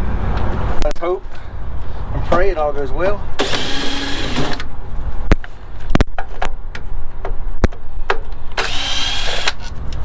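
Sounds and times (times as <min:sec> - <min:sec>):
power tool whirring: 0:03.4 - 0:04.7, 0:08.6 - 0:09.7.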